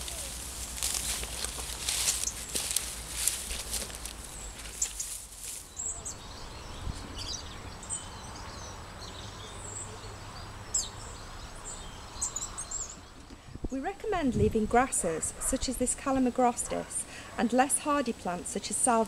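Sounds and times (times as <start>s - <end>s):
rustle of foliage: 0.0s - 7.3s
small birds chirping: 0.0s - 13.6s
outdoor background noise: 0.0s - 19.0s.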